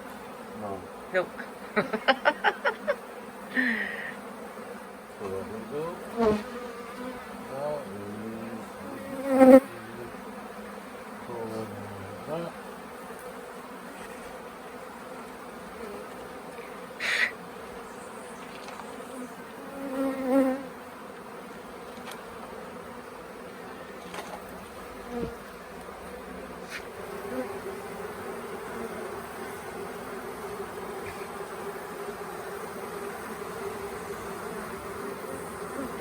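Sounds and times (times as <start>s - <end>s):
bees buzzing: 0.0s - 36.0s
short hiss-like burst: 17.0s - 17.4s.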